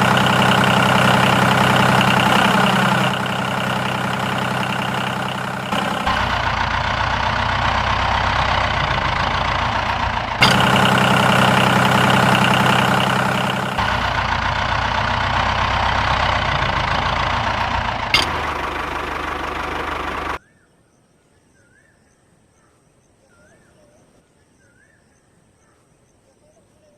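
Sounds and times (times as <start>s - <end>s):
tractor engine idling: 0.0s - 20.4s.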